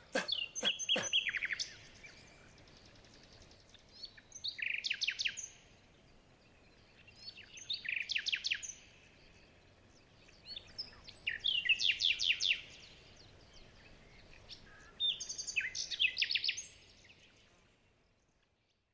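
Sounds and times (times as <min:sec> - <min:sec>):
songbird chirping: 0:00.0 - 0:18.9.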